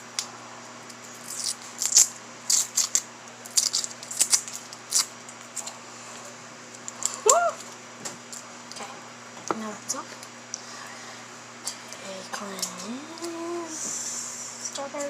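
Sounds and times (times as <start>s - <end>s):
candy wrappers crinkling: 1.0s - 5.7s.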